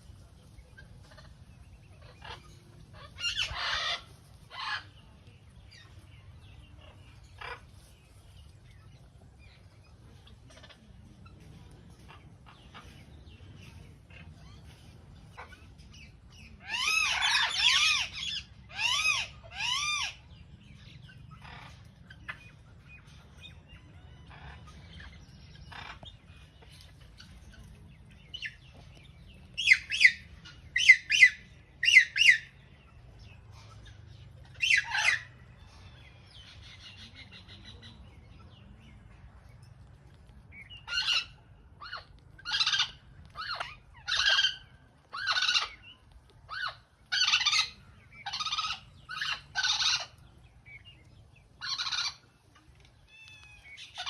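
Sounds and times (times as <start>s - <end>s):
parakeet squawking: 3.2s - 4.8s, 34.5s - 35.3s, 40.9s - 45.8s, 46.5s - 50.2s, 51.6s - 52.2s
faint low rumble: 18.0s - 54.0s.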